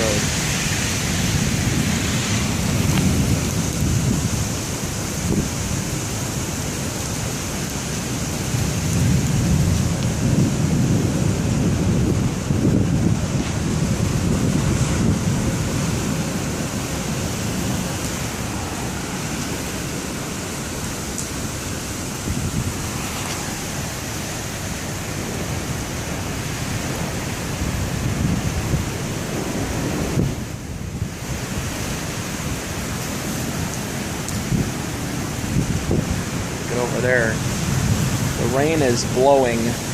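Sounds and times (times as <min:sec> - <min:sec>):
heavy rain hissing: 0:00.0 - 0:39.9
low thunder rumble: 0:00.0 - 0:39.9
wind buffeting microphone: 0:00.0 - 0:39.9.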